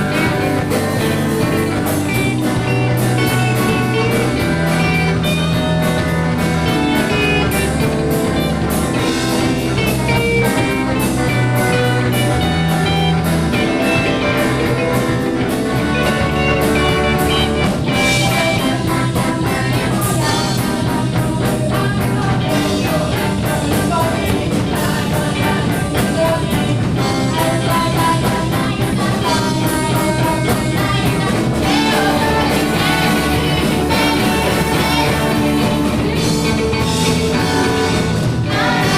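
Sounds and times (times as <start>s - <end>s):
drum kit beat: 0.0s - 38.9s
electric guitar: 0.0s - 38.9s
person singing: 11.6s - 38.9s.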